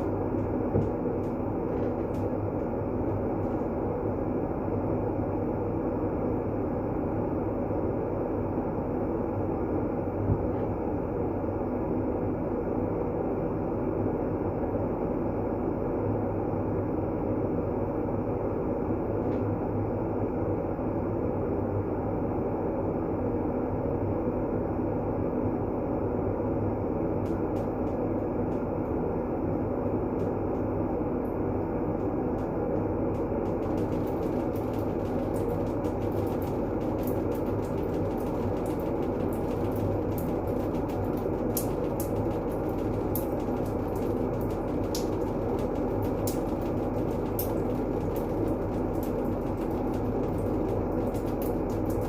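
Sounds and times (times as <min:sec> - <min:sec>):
deep rumbling white noise: 0:00.0 - 0:52.0
faint crackle of high ticks: 0:33.2 - 0:52.0.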